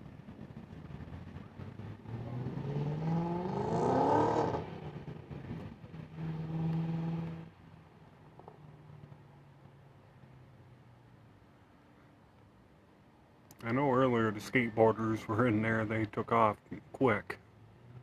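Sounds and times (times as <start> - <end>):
vehicle engine accelerating: 0.0 - 7.6.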